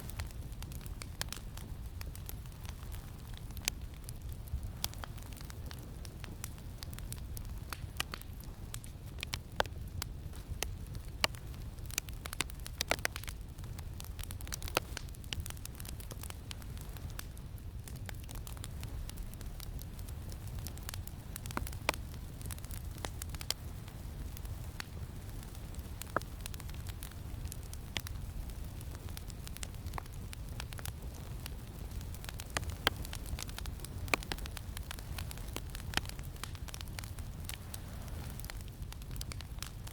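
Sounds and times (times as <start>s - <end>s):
campfire crackling and popping: 0.0s - 39.9s
low rumble of wind: 0.0s - 39.9s.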